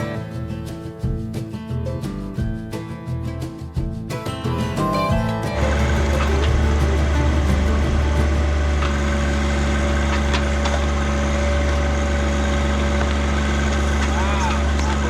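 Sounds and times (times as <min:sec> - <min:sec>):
backhoe engine running: 0:03.8 - 0:15.0.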